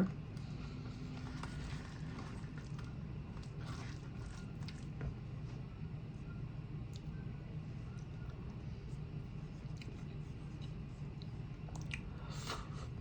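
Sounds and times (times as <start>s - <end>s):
low steady hum: 0.0s - 13.0s
chewing and mouth sounds: 1.1s - 5.0s, 9.6s - 12.8s.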